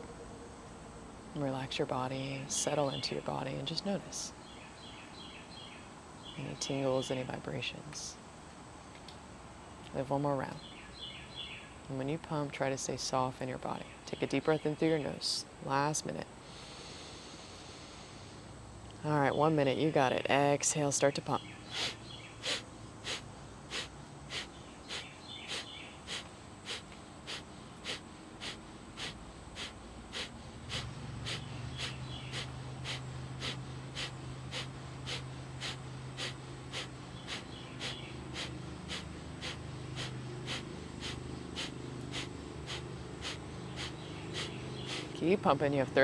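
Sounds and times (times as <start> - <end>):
low steady hum: 0.0 - 11.0, 11.7 - 46.0
sharp nasal exhales: 16.4 - 18.5, 21.6 - 45.2.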